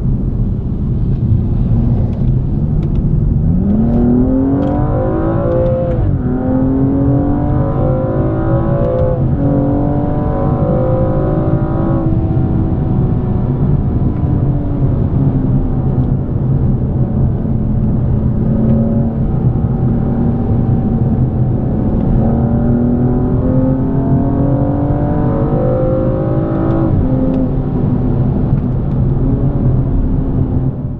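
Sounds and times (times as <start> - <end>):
car engine accelerating: 0.0 - 30.9.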